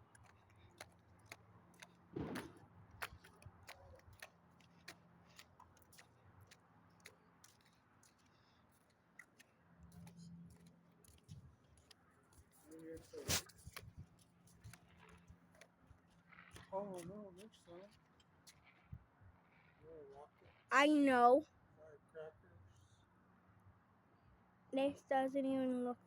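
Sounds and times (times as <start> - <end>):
small clicks and taps: 0.1 - 19.0.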